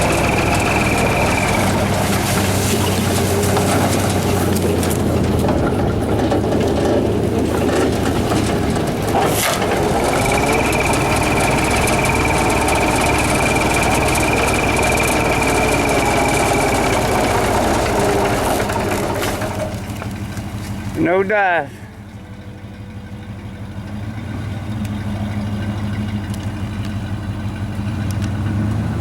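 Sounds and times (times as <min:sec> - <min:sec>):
tractor engine running: 0:00.0 - 0:29.0
thin high whine: 0:09.9 - 0:19.6.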